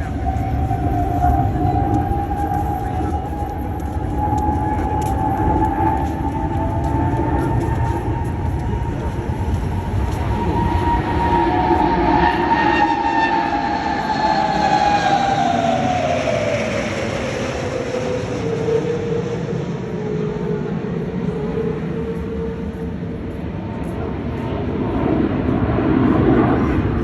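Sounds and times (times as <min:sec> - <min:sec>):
aircraft engine whine passing: 0:00.0 - 0:27.0
steady rumble: 0:00.0 - 0:27.0.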